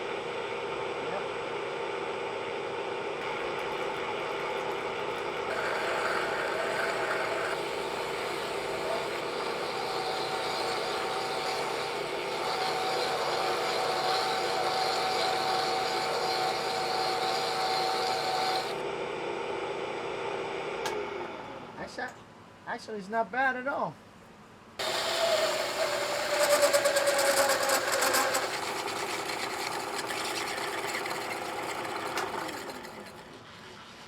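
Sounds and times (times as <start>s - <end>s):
drilling machine running: 1.0s - 18.9s, 24.8s - 33.4s
drill bit grinding metal: 3.2s - 18.8s, 24.8s - 33.4s.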